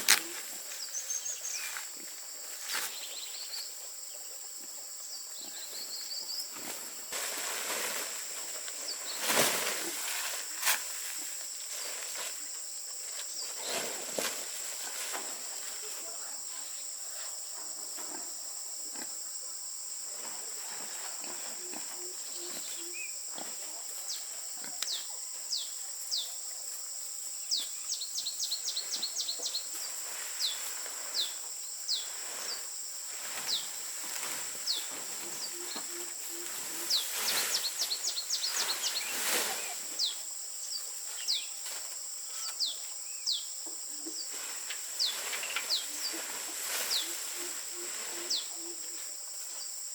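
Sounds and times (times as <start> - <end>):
birds chirping: 0.0 - 1.9, 34.6 - 41.5, 44.2 - 48.8
insects droning: 0.0 - 49.9.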